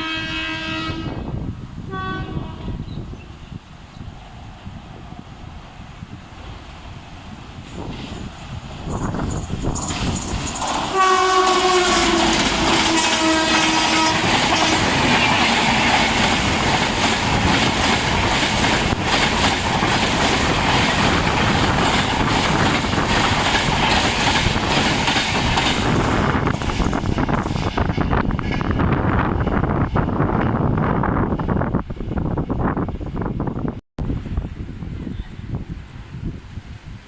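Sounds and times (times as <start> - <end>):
train horn: 0.0 - 3.0, 10.9 - 16.1
train passing with wheel clatter: 0.0 - 36.1.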